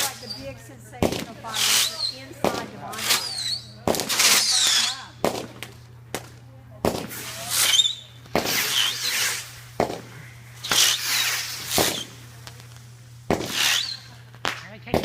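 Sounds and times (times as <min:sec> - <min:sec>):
fireworks bangs: 0:00.0 - 0:15.0
fireworks crackling hiss: 0:00.0 - 0:15.0
falling whistles: 0:03.0 - 0:03.7, 0:07.5 - 0:09.4, 0:13.6 - 0:14.2.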